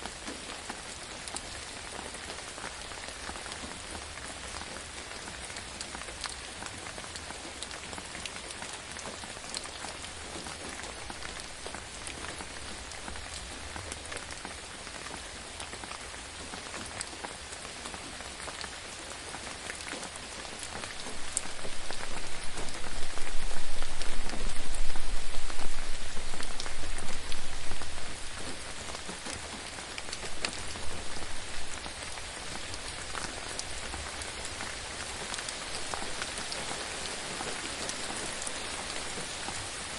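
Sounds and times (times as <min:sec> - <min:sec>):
gentle rain falling: 0:00.0 - 0:39.9
raindrop ticks: 0:19.6 - 0:39.7.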